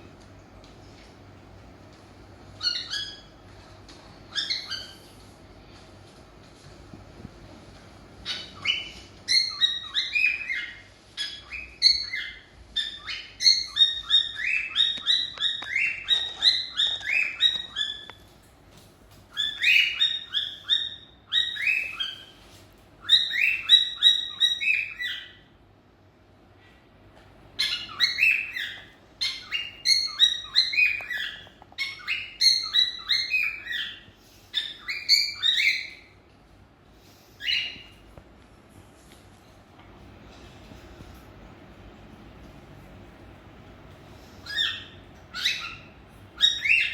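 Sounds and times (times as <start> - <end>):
cockatiels chirping: 2.5 - 3.4, 4.3 - 5.2, 8.2 - 18.4, 19.3 - 25.5, 27.5 - 36.2, 37.1 - 38.0, 44.2 - 46.9.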